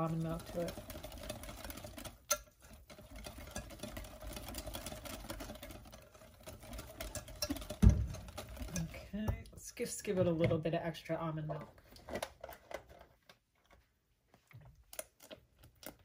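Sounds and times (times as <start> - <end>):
whisk beating batter in glass: 0.0 - 9.3.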